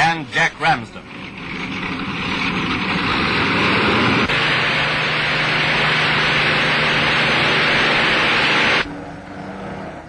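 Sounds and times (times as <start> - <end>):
aircraft engines droning: 0.0 - 10.0
low steady hum: 0.0 - 10.0
old soundtrack hiss: 3.6 - 8.9.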